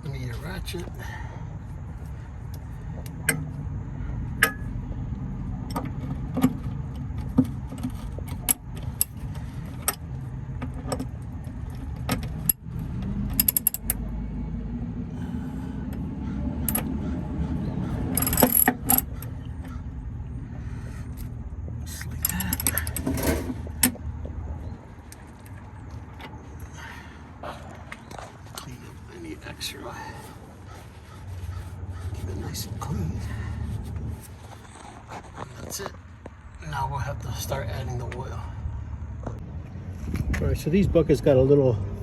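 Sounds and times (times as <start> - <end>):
steady low rumble: 11.2 - 34.5
hand ratchet clicking: 13.4 - 14.0, 16.7 - 16.9, 18.2 - 19.2, 22.2 - 23.2.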